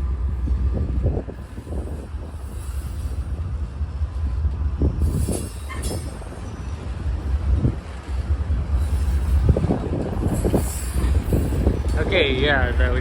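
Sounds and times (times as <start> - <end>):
freight train rumbling: 0.0 - 13.0
wheel squeal on rail: 1.4 - 3.6, 5.0 - 7.0, 8.6 - 12.1
train cars knocking: 4.0 - 13.0.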